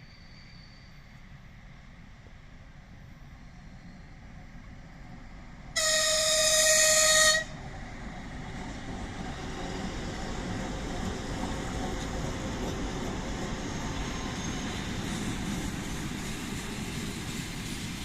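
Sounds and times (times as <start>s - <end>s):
locomotive horn blast: 5.8s - 7.6s.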